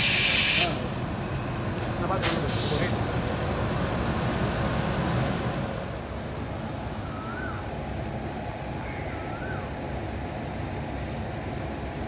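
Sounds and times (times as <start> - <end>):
bird calling: 7.0 - 7.8, 8.7 - 9.8.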